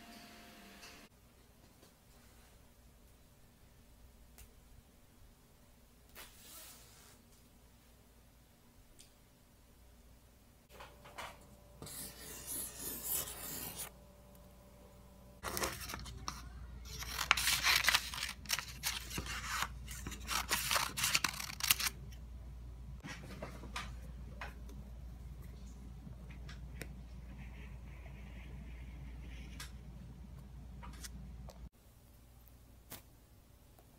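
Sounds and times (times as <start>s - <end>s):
highlighter stroking paper: 11.8s - 13.9s
paper rustling: 15.4s - 22.0s
scissors snipping paper: 15.4s - 22.0s.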